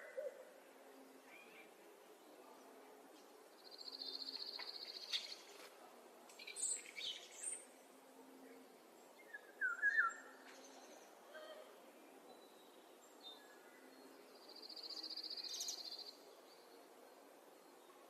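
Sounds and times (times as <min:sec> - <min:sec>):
songbirds trilling and chirping: 0:00.0 - 0:05.7, 0:06.3 - 0:18.0.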